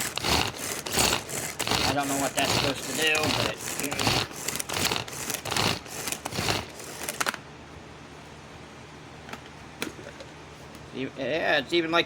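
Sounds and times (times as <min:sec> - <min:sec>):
pull-cord food processor whirring: 0:00.0 - 0:07.4.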